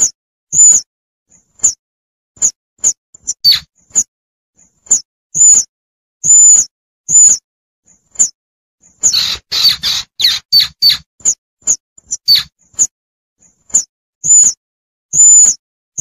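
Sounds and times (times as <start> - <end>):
shrill squirrel chirps: 0.0 - 0.9, 1.6 - 1.8, 2.4 - 4.1, 4.8 - 7.4, 8.2 - 12.9, 13.7 - 15.6
rasping squirrel calls: 3.3 - 3.7, 9.0 - 11.1, 12.1 - 12.6.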